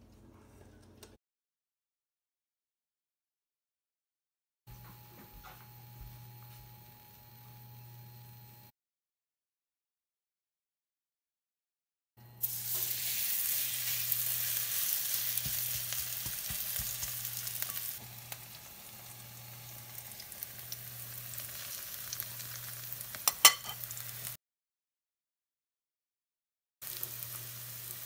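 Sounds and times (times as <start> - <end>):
batter sizzling in hot oil: 12.4 - 24.4, 26.8 - 28.0.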